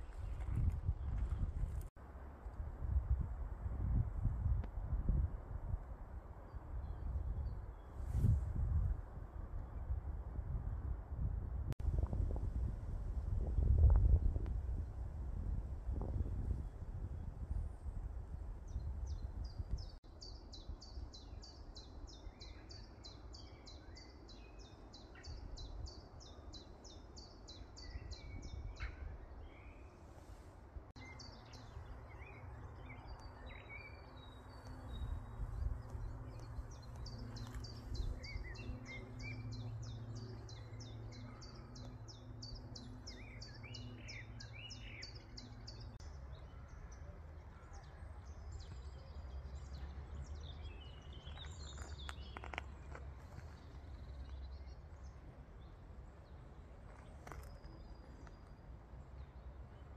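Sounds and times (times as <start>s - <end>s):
bird singing downward-sweeping notes: 31.0s - 47.1s
birds chirping: 31.0s - 59.9s.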